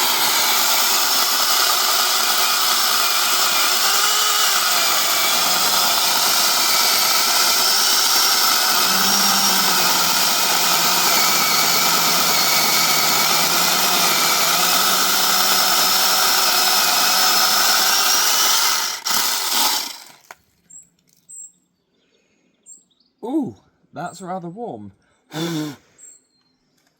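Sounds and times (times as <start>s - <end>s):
electric chainsaw cutting wood: 0.0s - 20.4s.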